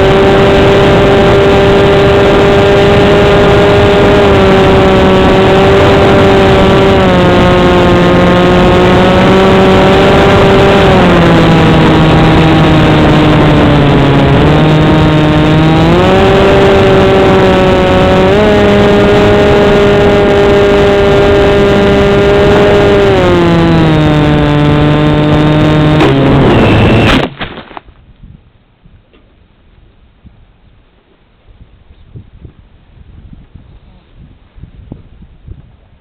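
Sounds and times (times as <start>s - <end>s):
wind on microphone: 0.0s - 27.2s, 27.9s - 30.8s, 31.4s - 36.0s
propeller motor whine: 0.0s - 27.3s.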